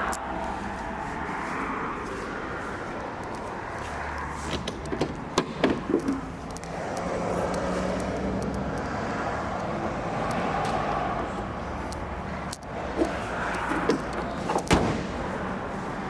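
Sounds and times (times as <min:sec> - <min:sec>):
clicks and knocks: 0:04.4 - 0:07.0.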